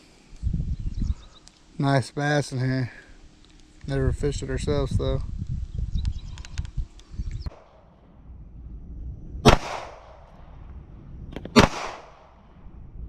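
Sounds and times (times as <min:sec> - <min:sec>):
gunshots with echo: 0:09.5 - 0:10.2, 0:11.6 - 0:12.3.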